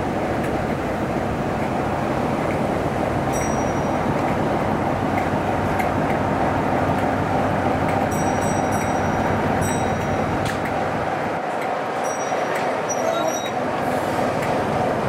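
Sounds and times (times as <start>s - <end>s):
train rumbling on rails: 0.0s - 15.0s
high-pitched wheel squeals: 12.0s - 13.6s.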